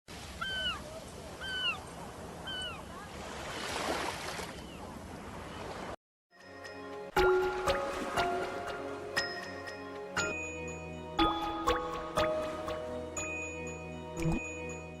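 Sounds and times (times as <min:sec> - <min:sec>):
bird calling: 0:00.4 - 0:03.0
music: 0:06.3 - 0:15.0.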